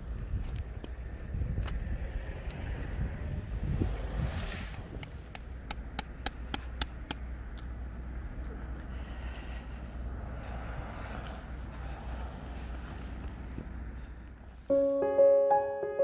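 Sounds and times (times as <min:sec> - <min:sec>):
strong wind rumbling: 0:00.0 - 0:05.4
sharp metallic clinks: 0:05.3 - 0:07.3.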